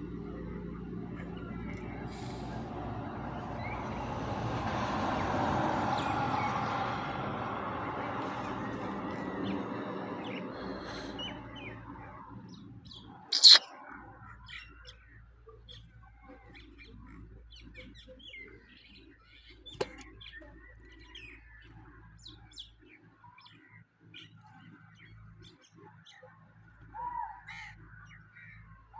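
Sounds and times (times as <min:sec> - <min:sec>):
small birds chirping: 0:10.2 - 0:13.6
sharp click: 0:13.3 - 0:13.6.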